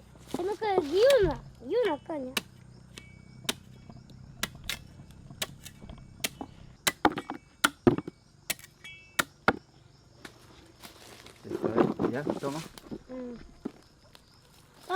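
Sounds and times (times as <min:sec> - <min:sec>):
chopping strikes on cane: 0:00.9 - 0:09.6.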